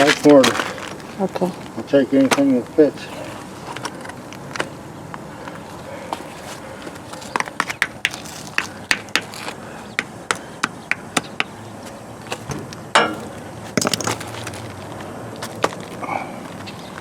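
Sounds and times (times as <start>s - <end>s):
hard objects knocking on rock: 7.3s - 11.6s, 12.5s - 14.7s.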